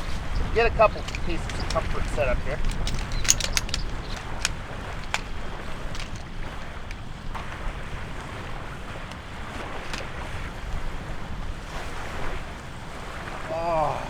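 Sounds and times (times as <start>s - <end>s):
sharp clicks and knocks: 0.0s - 6.3s
wind buffeting microphone: 0.0s - 13.5s
waves washing on shore: 3.7s - 14.0s.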